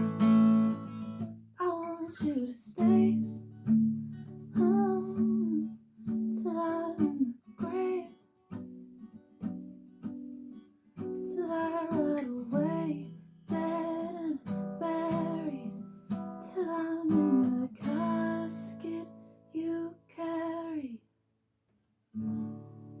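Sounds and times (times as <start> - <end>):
strummed acoustic guitar: 0.0 - 1.5, 2.1 - 19.5, 22.2 - 23.0
woman singing wordless notes: 6.4 - 8.2, 11.3 - 15.8, 16.4 - 21.0.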